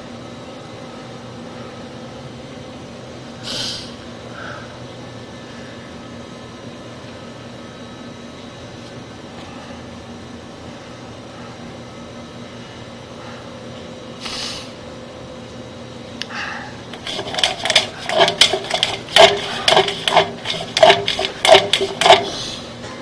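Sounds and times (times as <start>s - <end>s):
steady low hum: 0.0s - 23.0s
clattering knocks and rattles: 16.9s - 22.4s.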